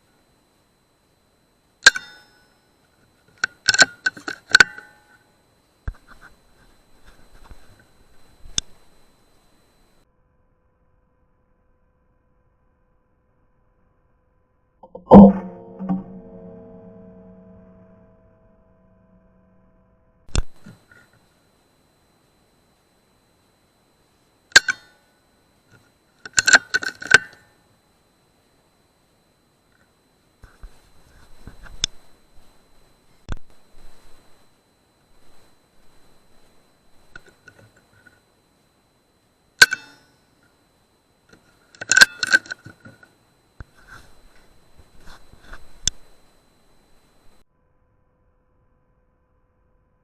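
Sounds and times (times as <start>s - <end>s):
short metallic ring: 1.8s - 2.7s, 3.7s - 5.3s, 14.8s - 19.8s, 24.5s - 25.2s, 39.6s - 40.3s, 41.8s - 42.6s
metallic clicks and rattles: 26.2s - 27.4s, 41.7s - 43.0s.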